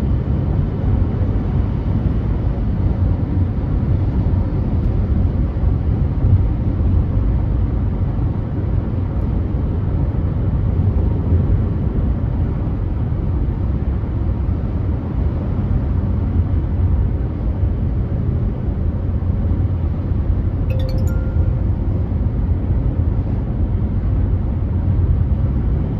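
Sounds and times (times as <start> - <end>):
short tone: 20.7 - 22.1.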